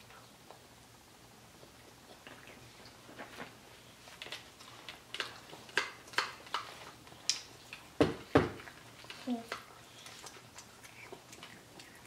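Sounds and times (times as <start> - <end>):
children chewing: 0.0 - 12.0.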